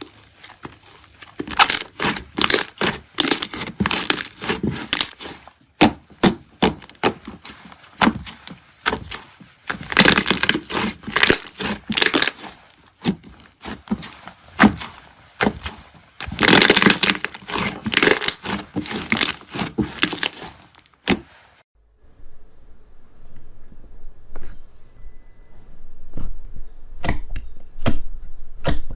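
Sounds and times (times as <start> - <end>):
slime crackling and popping: 1.4 - 21.3.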